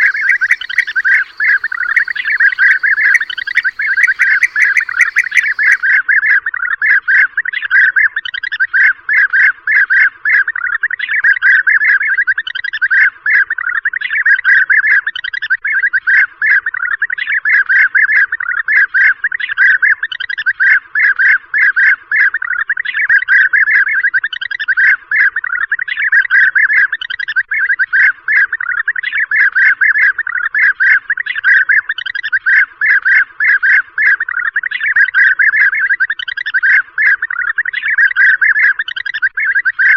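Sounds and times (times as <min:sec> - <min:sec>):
flock of birds rolling calls: 0:00.0 - 0:05.8.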